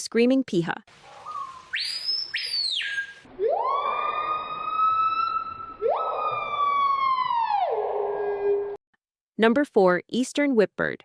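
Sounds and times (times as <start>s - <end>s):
screaming piha whistling calls: 1.0s - 7.0s.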